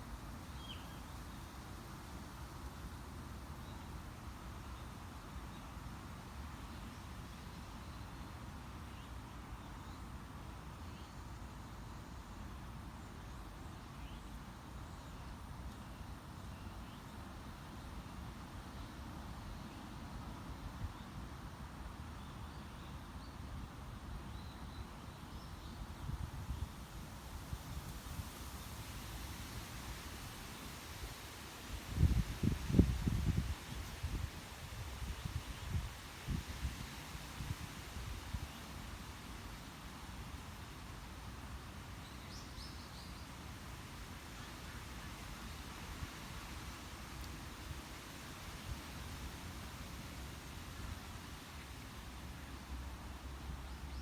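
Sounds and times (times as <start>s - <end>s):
soft hiss: 0.0s - 54.0s
wind rustling foliage: 0.0s - 54.0s
wind gusting on microphone: 31.8s - 36.8s.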